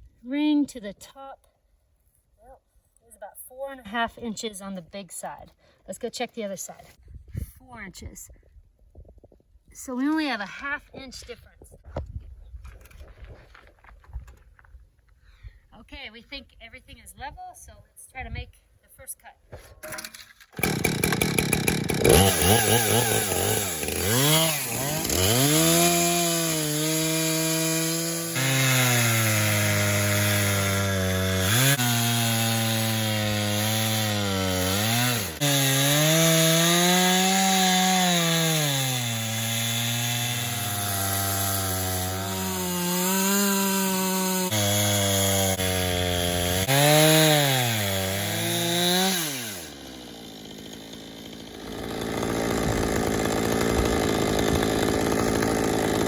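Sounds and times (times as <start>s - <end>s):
chainsaw cutting log: 19.8s - 56.0s.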